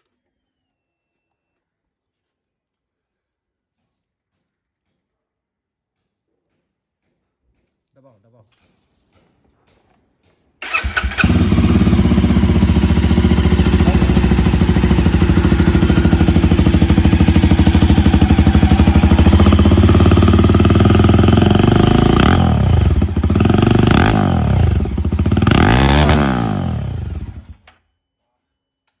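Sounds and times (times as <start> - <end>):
motorcycle engine idling and revving: 10.6 - 27.7.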